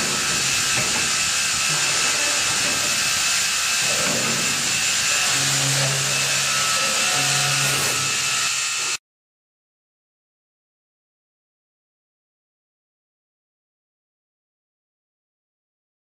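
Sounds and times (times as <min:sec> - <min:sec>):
boring machine whirring hiss: 0:00.0 - 0:09.0.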